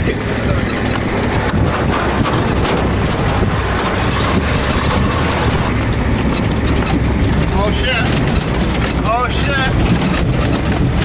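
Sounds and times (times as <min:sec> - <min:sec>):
knocks and rattles from jolting ride: 0:00.0 - 0:11.0
truck engine rumble: 0:00.0 - 0:11.0.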